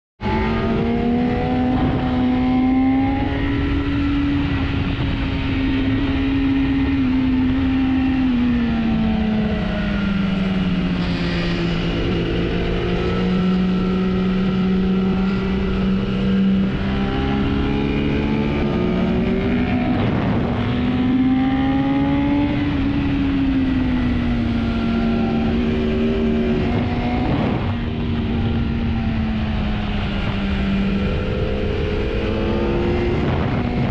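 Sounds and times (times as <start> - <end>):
motorcycle engine at high revs: 0.2 - 33.9
steady rush of noise: 9.5 - 21.2.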